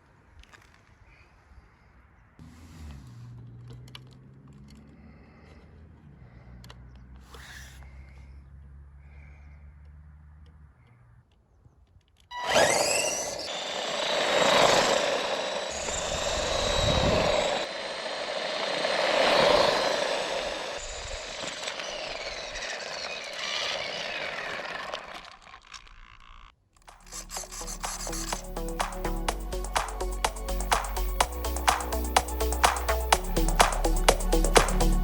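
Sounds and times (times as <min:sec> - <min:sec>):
toy truck electric motor whining: 0:06.6 - 0:08.6, 0:12.3 - 0:29.0.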